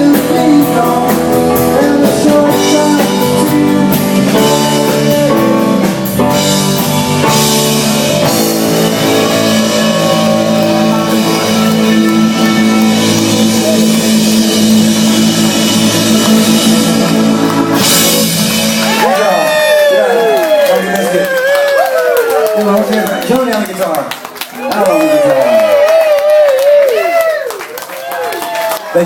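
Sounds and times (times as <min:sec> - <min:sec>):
live rock band playing: 0:00.0 - 0:21.3.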